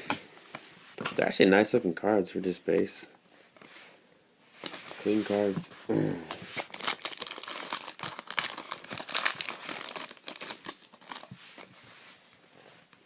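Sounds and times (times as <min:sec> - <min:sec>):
foil wrapper crinkling: 0:06.5 - 0:11.4.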